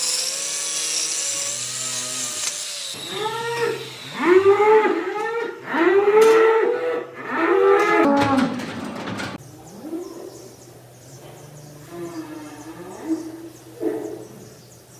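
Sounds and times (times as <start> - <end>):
cattle mooing: 3.1 - 8.5.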